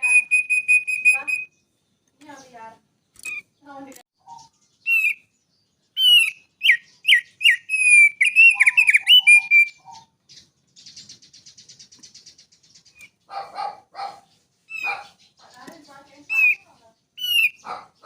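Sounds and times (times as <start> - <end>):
songbird whistling: 0.0 - 1.7, 4.2 - 13.2, 14.7 - 15.2, 16.1 - 17.9
bird rattling trill: 6.0 - 18.0.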